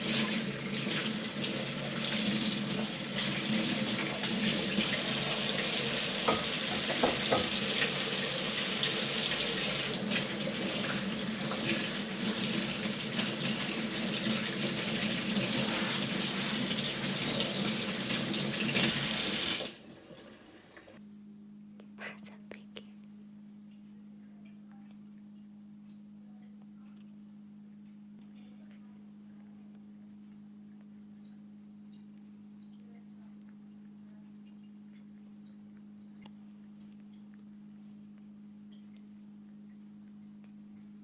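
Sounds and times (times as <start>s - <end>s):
tap water running into sink: 0.0s - 21.0s.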